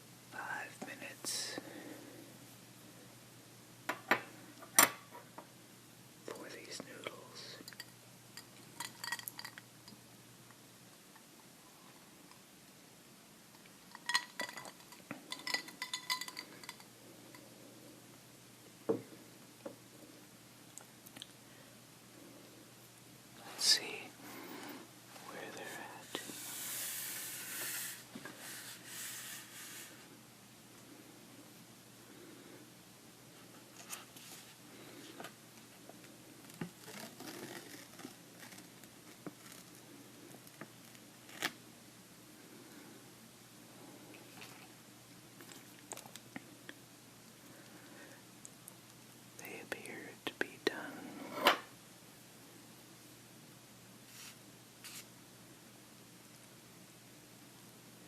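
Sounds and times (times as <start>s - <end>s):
noodle cup scrapes and rustles: 26.1s - 30.0s, 36.8s - 39.8s.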